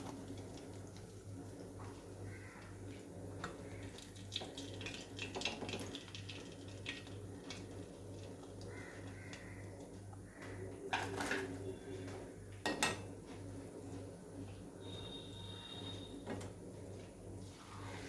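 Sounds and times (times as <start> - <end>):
small kitchen clicks and taps: 3.4 - 11.5, 12.6 - 13.1.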